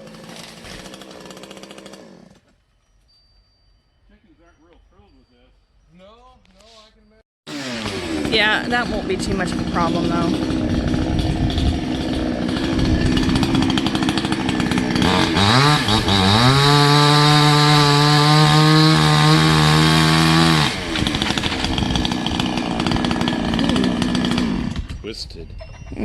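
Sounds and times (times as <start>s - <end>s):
chainsaw idling and revving: 0.0s - 2.5s, 7.5s - 25.0s.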